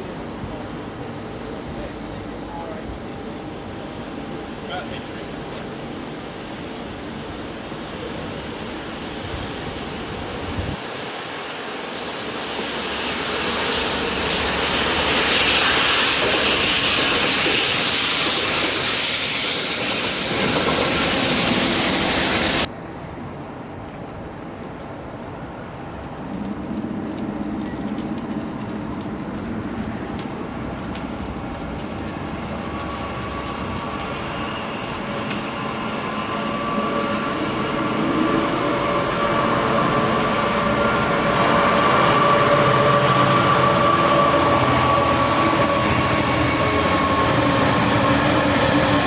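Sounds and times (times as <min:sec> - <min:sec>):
train running: 0:00.0 - 0:49.0
steady whine: 0:28.7 - 0:49.0.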